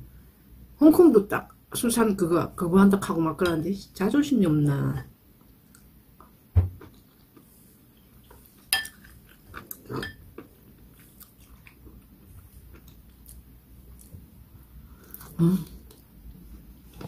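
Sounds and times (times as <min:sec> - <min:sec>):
person chewing food: 0:05.4 - 0:16.1
low thump: 0:06.5 - 0:06.8.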